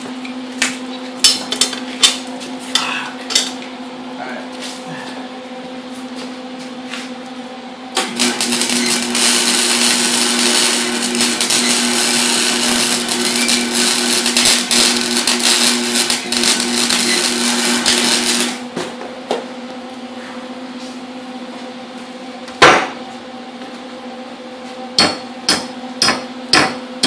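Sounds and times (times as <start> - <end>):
welder humming: 4.2 - 21.0
welding arc crackling: 8.0 - 18.7.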